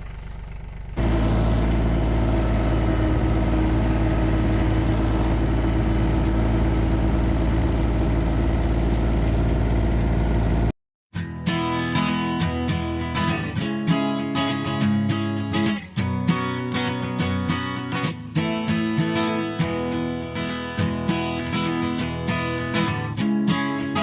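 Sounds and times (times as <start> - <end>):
tractor engine running: 0.0 - 10.7.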